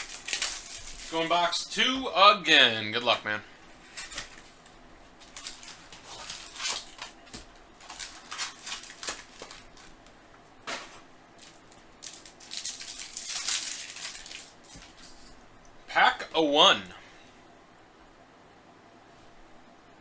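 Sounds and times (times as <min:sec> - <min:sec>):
sharp crackle of foil: 0:00.0 - 0:01.6, 0:05.2 - 0:10.1, 0:11.4 - 0:15.3
foil card packs rustling: 0:00.0 - 0:02.1, 0:03.0 - 0:15.4.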